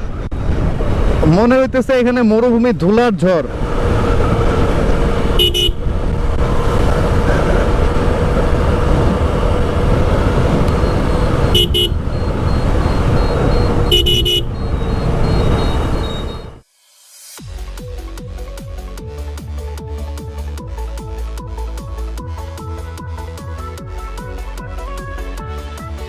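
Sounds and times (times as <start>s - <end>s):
motorcycle riding: 0.0s - 1.9s, 2.5s - 16.6s
wind buffeting microphone: 3.5s - 16.6s
vehicle horn honks: 5.3s - 5.9s, 10.8s - 16.6s.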